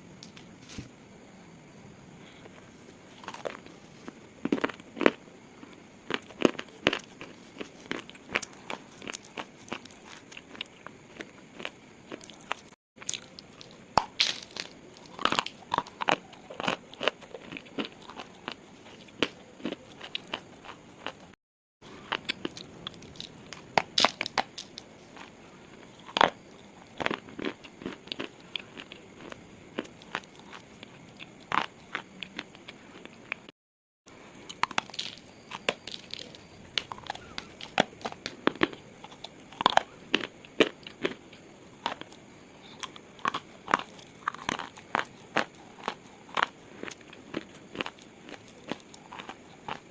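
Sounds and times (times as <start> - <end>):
slate crunching and crackling: 34.4 - 49.9.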